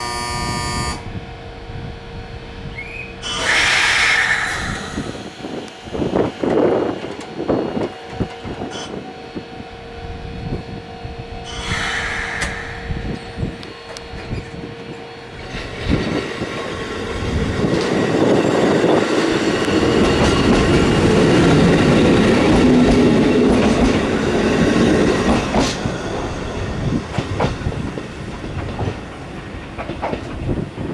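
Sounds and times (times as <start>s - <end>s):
train motor and wheel rumble: 0.0s - 30.9s
steady tone: 3.2s - 6.3s, 11.5s - 14.4s
wheels clicking over rail joints: 15.4s - 30.9s.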